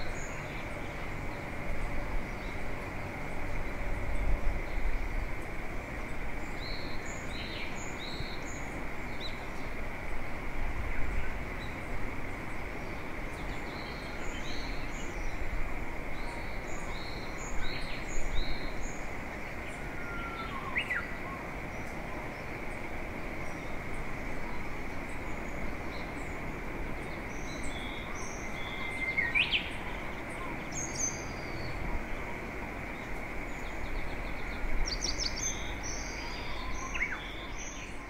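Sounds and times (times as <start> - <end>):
outdoor background hiss: 0.0 - 38.0
songbird calling: 16.1 - 22.5, 23.4 - 38.0.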